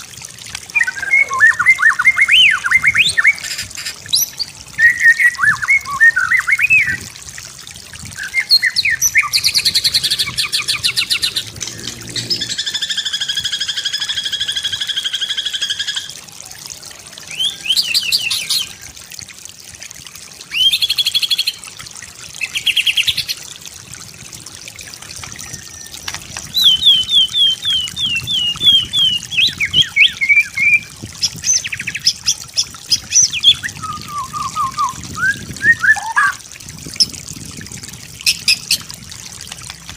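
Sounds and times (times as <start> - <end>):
songbird singing chattering phrases: 0.7 - 7.0, 8.2 - 16.2, 26.5 - 36.4.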